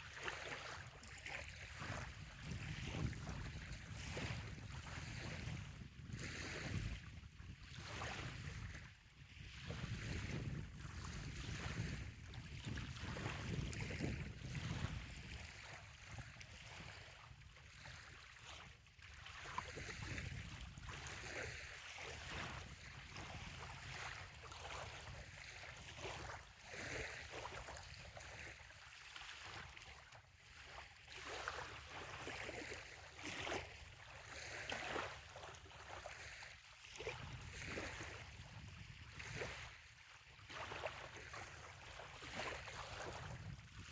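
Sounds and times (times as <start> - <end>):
small waves lapping: 0.0 - 43.9
wind rumble on microphone: 0.3 - 18.7, 19.4 - 28.6, 36.4 - 39.9, 40.5 - 43.9.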